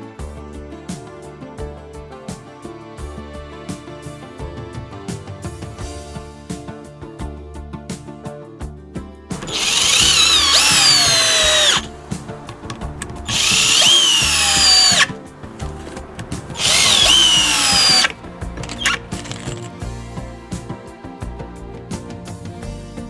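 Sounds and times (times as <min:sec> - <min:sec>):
background music: 0:00.0 - 0:23.0
cordless drill motor running: 0:09.4 - 0:19.7.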